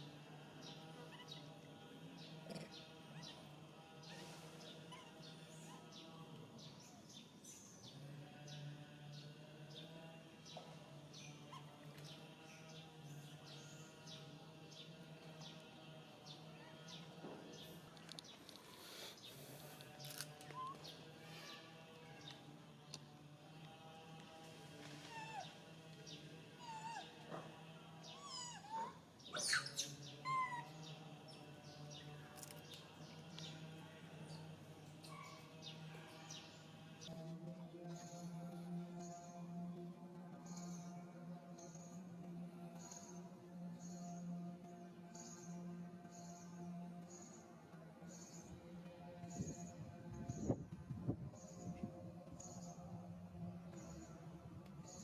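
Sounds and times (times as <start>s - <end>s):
monkey squeals: 26.6s - 27.1s, 28.2s - 30.7s
monkey shrieks: 28.2s - 30.7s.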